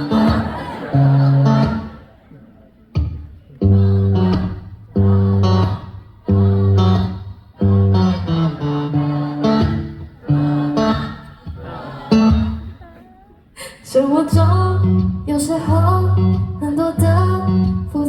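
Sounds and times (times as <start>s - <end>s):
guitar chords strummed: 3.0s - 12.8s, 14.3s - 18.0s.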